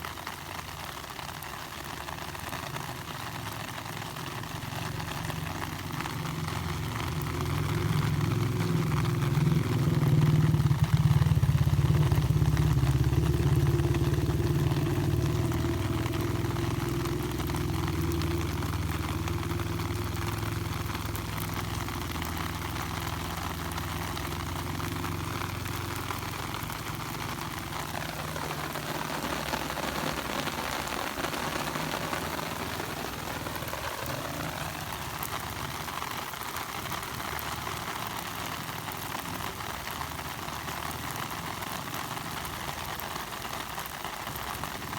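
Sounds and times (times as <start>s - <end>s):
motor engine running: 4.3s - 36.0s.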